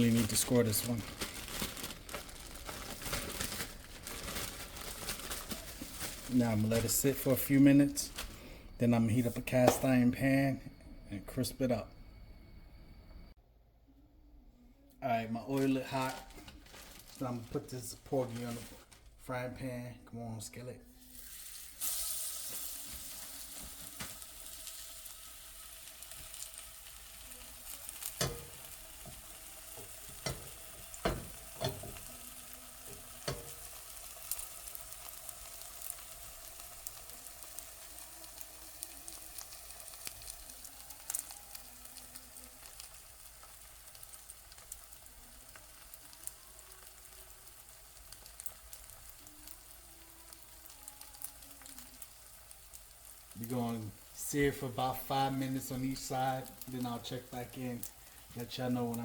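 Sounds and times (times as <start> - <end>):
fish sizzling in hot oil: 21.0 - 59.0.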